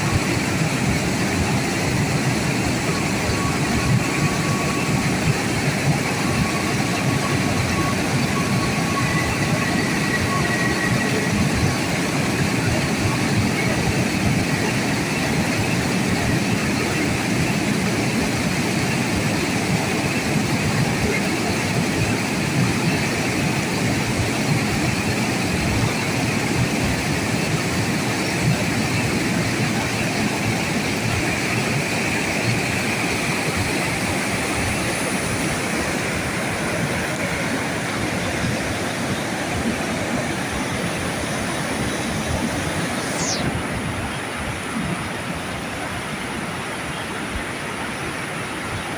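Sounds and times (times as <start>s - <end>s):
high falling squeal: 2.9s - 12.2s.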